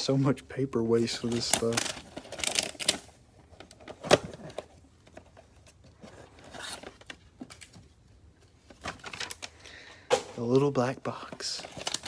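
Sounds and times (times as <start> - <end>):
cardboard boxes scraping and rustling: 6.0 - 7.0.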